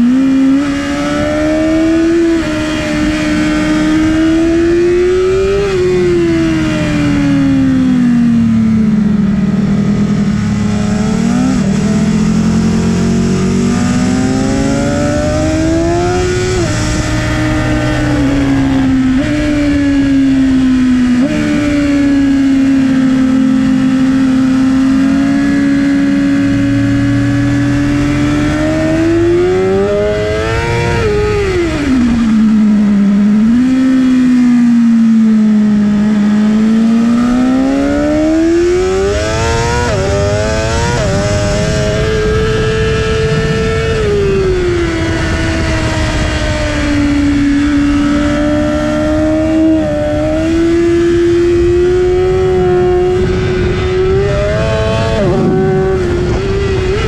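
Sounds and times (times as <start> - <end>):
motorcycle engine revving: 0.0 - 57.0
wind rush: 10.0 - 32.7, 37.1 - 57.0.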